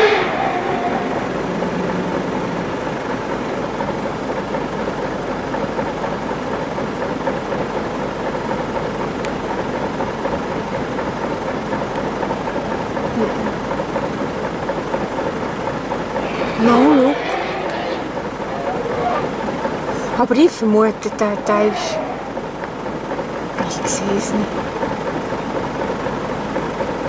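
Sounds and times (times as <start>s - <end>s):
elephant trumpeting: 0.0s - 3.8s, 16.0s - 20.2s, 21.0s - 23.2s
vehicle engine idling: 0.0s - 27.0s.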